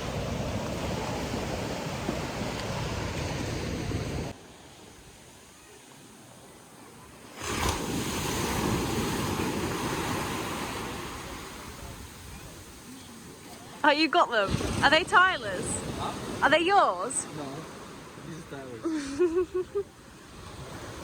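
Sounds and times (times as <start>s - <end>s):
sea surf washing onto beach: 0.0s - 21.0s.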